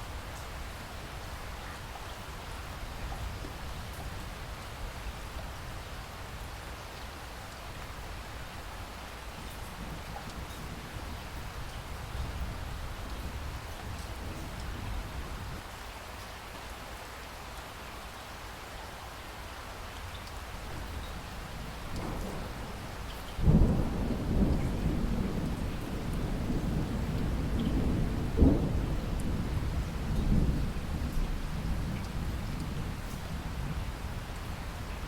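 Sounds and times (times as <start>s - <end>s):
steady rain: 0.0s - 35.0s
thunder clap rolling: 23.4s - 29.6s.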